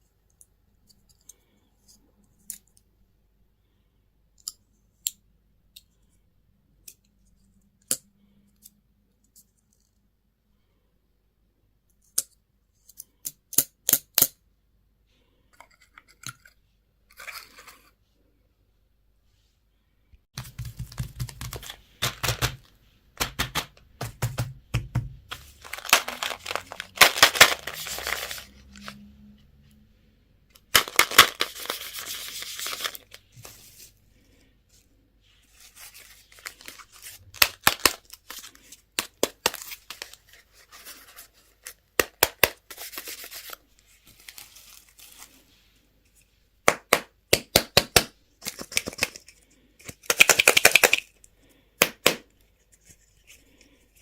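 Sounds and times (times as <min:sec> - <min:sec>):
wrappers crinkling and tearing: 0:25.4 - 0:29.0.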